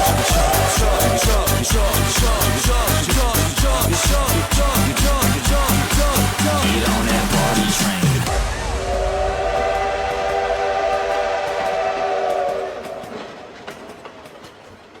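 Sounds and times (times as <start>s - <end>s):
train horn chord: 9.1s - 13.3s.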